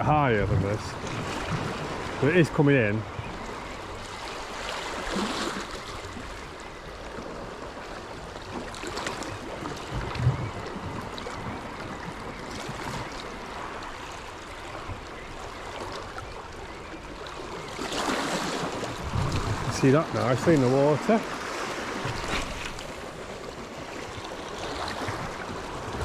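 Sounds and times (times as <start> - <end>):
sea water washing against rocks: 17.8 - 26.0.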